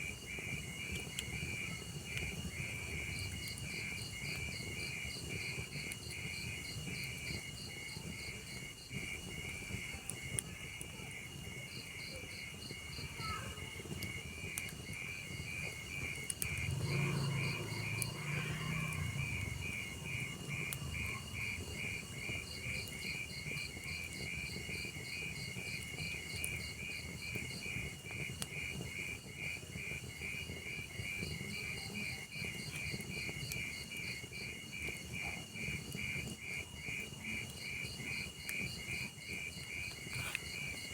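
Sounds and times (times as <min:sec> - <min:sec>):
wood fire crackling: 0:00.0 - 0:40.9
insects chirping in pulses: 0:11.7 - 0:31.4.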